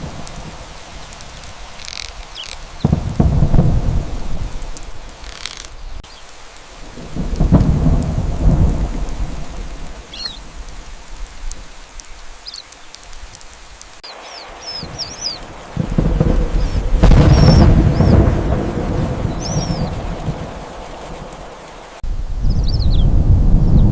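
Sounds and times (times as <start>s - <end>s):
steady rain: 0.0s - 23.9s
rolls of thunder: 2.8s - 5.0s, 6.9s - 10.6s, 14.8s - 23.9s.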